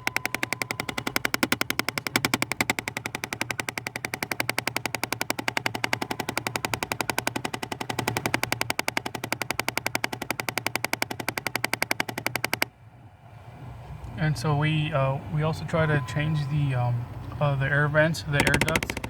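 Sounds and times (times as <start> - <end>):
rapid clicking rattle in air ducts: 0.0 - 12.7, 18.1 - 19.0.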